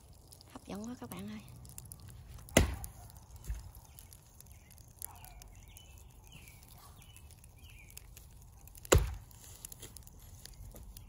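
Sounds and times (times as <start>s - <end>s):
low outdoor rumble: 0.0s - 11.0s
bird chirping: 3.5s - 8.2s.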